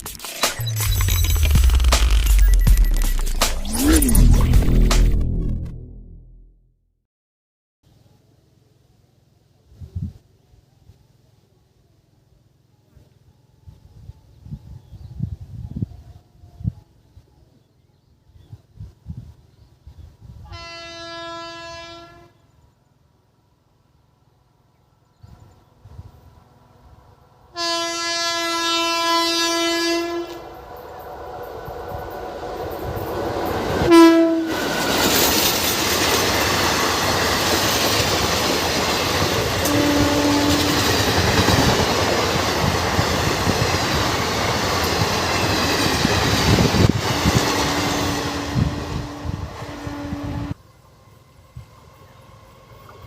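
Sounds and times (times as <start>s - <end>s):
train horn blasts: 20.4s - 22.4s, 27.6s - 30.6s, 33.8s - 34.8s, 39.6s - 41.0s, 47.1s - 50.6s
train rushing past: 29.9s - 53.0s.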